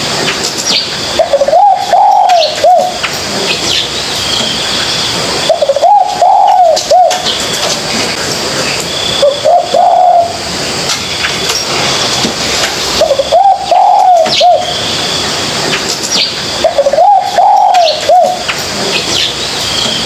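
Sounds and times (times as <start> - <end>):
dove cooing: 1.2 - 3.0, 5.5 - 7.4, 9.2 - 10.4, 13.0 - 14.8, 16.6 - 18.5.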